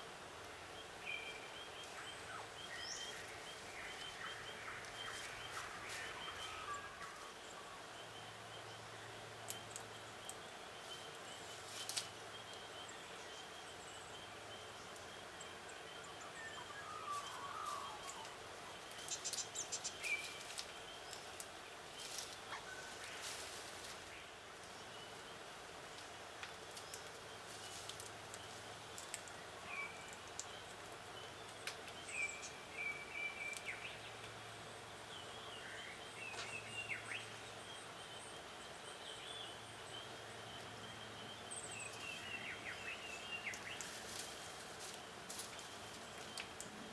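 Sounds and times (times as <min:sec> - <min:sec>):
steady background hiss: 0:00.0 - 0:46.9
birds chirping: 0:00.7 - 0:25.5.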